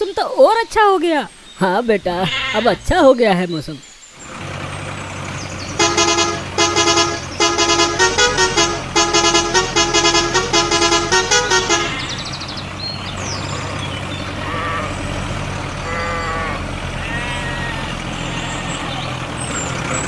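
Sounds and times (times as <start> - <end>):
engine hum: 4.0 - 20.0
musical vehicle horn tune: 5.7 - 12.8, 15.8 - 18.8.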